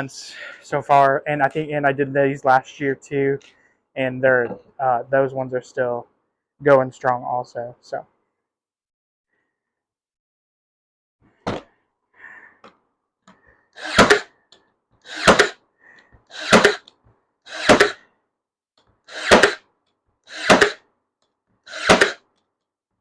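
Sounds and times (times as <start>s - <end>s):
cordless nail gun shots: 13.8s - 14.3s, 15.1s - 15.6s, 16.4s - 16.9s, 17.5s - 18.0s, 19.1s - 19.7s, 20.3s - 20.8s, 21.7s - 22.2s.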